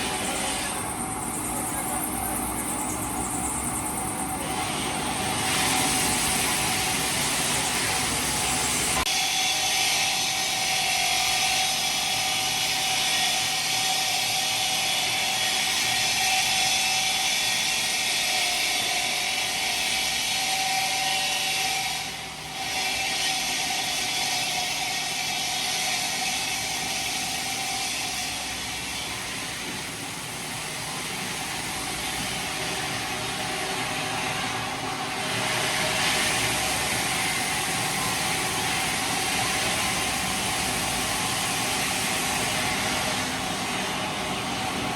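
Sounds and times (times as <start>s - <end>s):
stone-processing machinery whine: 0.0s - 44.9s.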